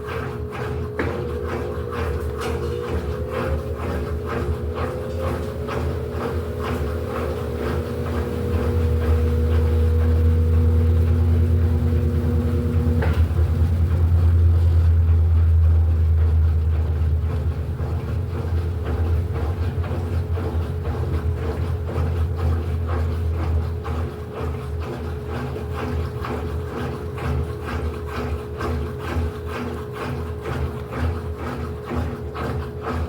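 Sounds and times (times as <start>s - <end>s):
steady hum: 0.0s - 19.6s
washing machine churning: 0.0s - 33.0s.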